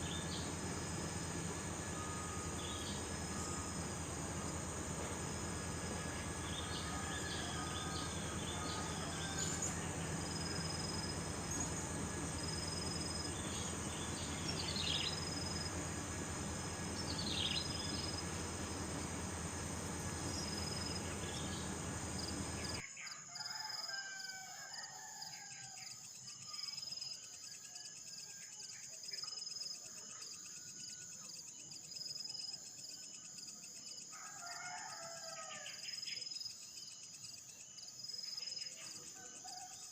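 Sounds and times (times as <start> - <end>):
warbling bird calls: 0.0 - 22.8
insects trilling: 0.0 - 39.9
bird chirps: 6.4 - 19.2.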